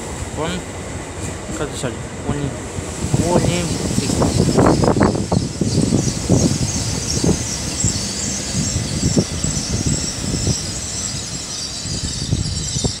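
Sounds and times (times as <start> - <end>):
train rolling slowly past: 0.0 - 13.0
high-pitched squeal: 3.2 - 13.0.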